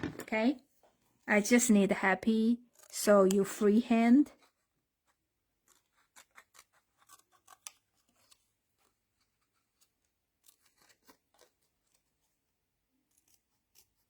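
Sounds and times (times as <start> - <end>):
scissors snipping paper: 2.6 - 12.4, 13.0 - 14.0.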